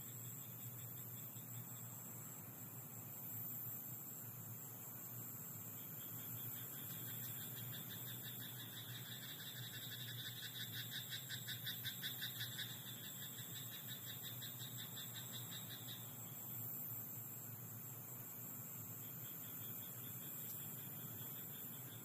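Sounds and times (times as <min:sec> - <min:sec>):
steady high-pitched hum: 0:00.0 - 0:22.0
frogs croaking chorus: 0:04.1 - 0:16.9, 0:17.5 - 0:22.0.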